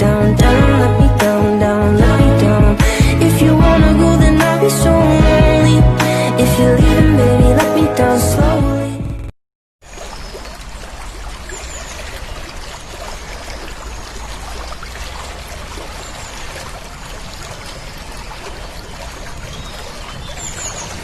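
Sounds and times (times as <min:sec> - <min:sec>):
running water: 0:09.8 - 0:21.0.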